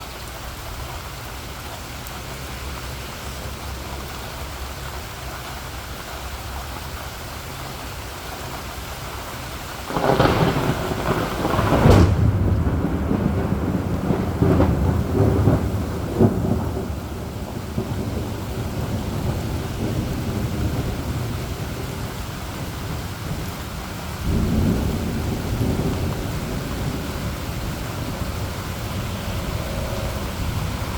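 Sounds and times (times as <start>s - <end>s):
heavy rain falling: 0.0s - 30.9s
thunder clap and rumble: 9.4s - 30.9s.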